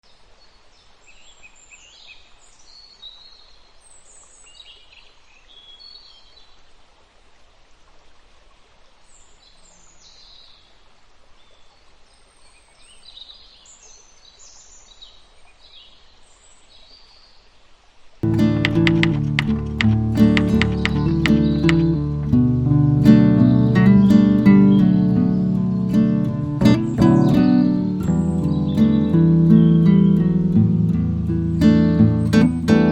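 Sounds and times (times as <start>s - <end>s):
faint outdoor hiss: 0.0s - 32.9s
plucked guitar music: 18.2s - 32.9s
birds chirping and singing: 23.8s - 32.9s.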